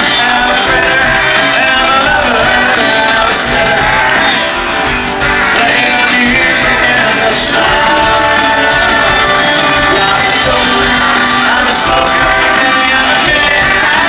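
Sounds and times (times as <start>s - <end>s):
person singing: 0.0s - 4.7s, 5.3s - 14.0s
guitar: 0.0s - 14.0s
live country-rock band: 0.0s - 14.0s.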